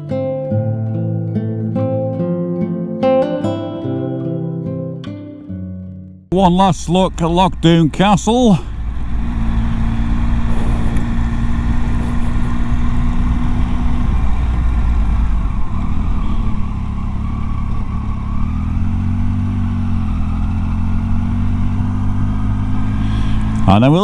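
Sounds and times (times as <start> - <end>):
motorcycle engine: 6.4 - 24.0.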